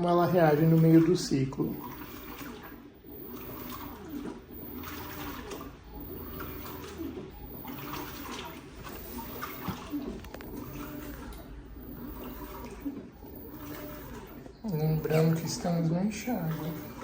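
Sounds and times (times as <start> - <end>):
water sloshing in washing machine: 0.0 - 17.0.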